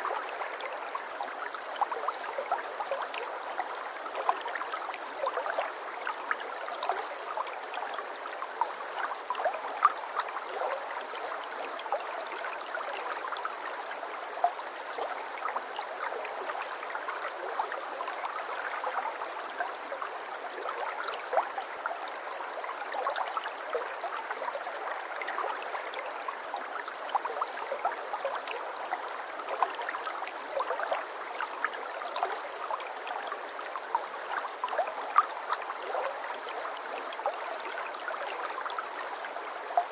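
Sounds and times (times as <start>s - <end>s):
brook water trickling over stones: 0.0s - 39.9s.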